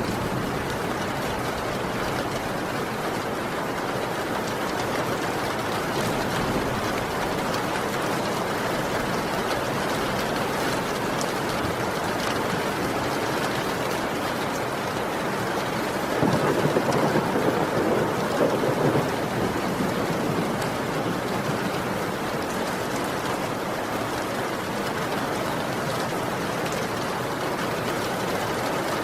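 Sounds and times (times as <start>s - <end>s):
thunder rumbling: 0.0s - 3.3s, 4.7s - 11.8s, 16.0s - 22.5s
heavy rain: 0.0s - 29.0s.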